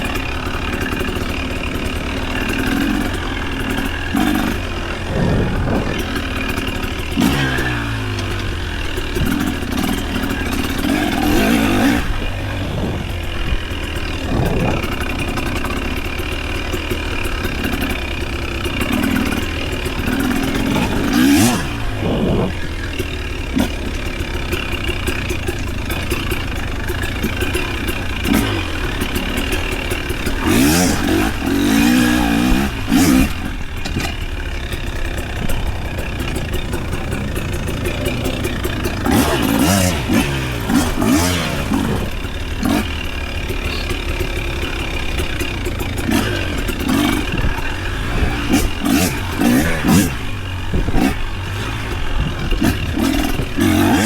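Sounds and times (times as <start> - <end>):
scattered clatter: 0.0 - 54.0
vehicle engines revving and passing: 0.0 - 54.0
steady low hum: 3.1 - 8.6.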